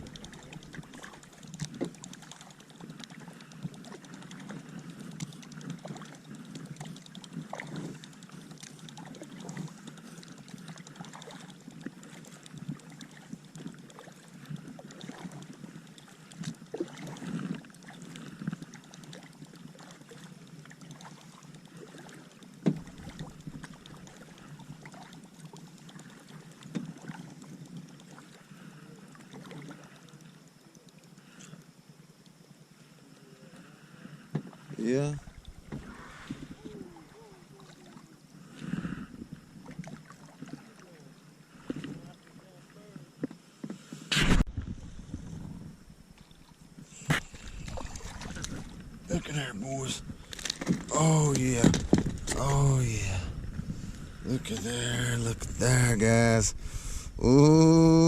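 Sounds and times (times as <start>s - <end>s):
kayak knocks and handling noise: 22.6s - 23.7s, 35.3s - 36.8s, 46.9s - 49.1s, 50.0s - 52.6s.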